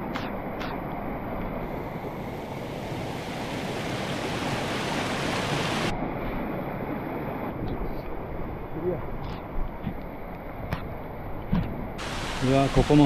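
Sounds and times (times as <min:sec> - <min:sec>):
floodwater rushing in a stream: 0:00.0 - 0:13.0.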